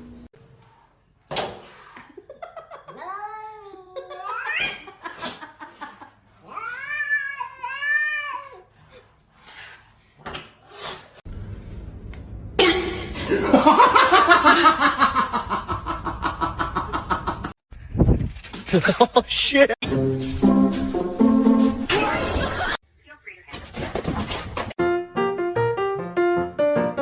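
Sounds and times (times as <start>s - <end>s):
loud laughter: 3.9s - 6.2s, 22.0s - 22.8s
cat meowing: 6.4s - 8.6s.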